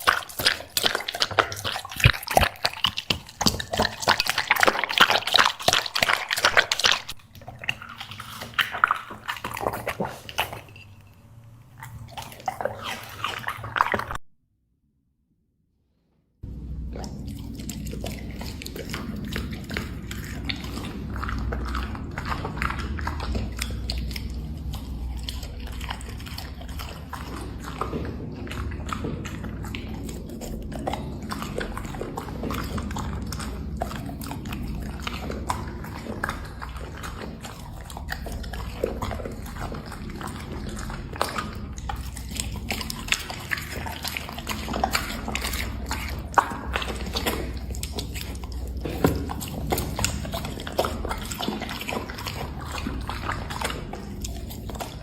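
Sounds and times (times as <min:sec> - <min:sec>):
dog chewing crunchy snacks: 0:00.0 - 0:11.0, 0:11.7 - 0:14.2, 0:16.7 - 0:55.0
low rumble: 0:16.4 - 0:40.0.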